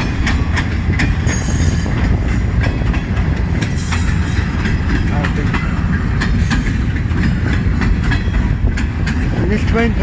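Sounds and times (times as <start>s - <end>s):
freight train cars rumbling: 0.0s - 10.0s
wheels clicking over rail joints: 0.0s - 10.0s
high wheel squeal: 1.3s - 2.0s.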